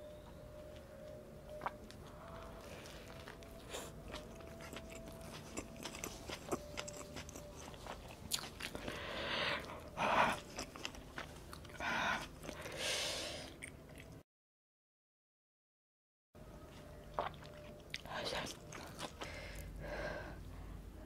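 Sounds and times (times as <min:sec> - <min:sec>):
person chewing and crunching: 0:01.0 - 0:14.2, 0:17.0 - 0:19.7
breathing: 0:08.8 - 0:09.8, 0:11.8 - 0:13.6, 0:19.2 - 0:21.0.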